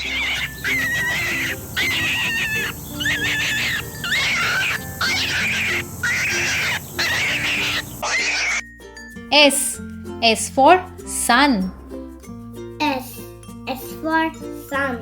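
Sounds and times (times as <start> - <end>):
high-pitched animal squeals: 0.0 - 8.6
light children's music: 0.0 - 15.0.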